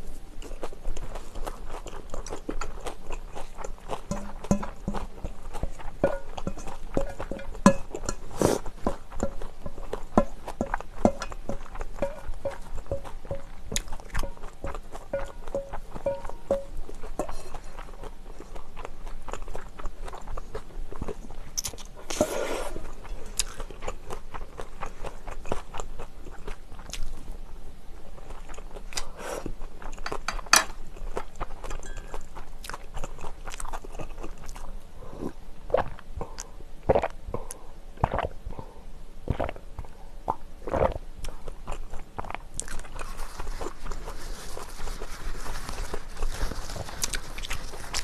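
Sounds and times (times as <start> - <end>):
close chewing with crunches: 0.0 - 48.0.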